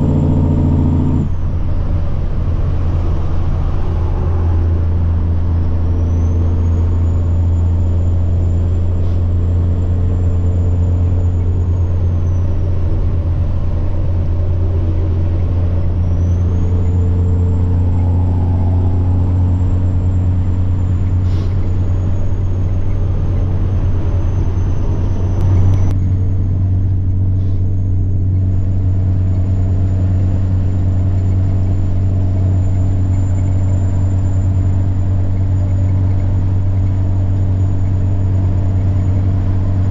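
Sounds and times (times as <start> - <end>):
diesel truck engine drone: 0.0 - 39.9
high turbo whine: 0.0 - 39.9.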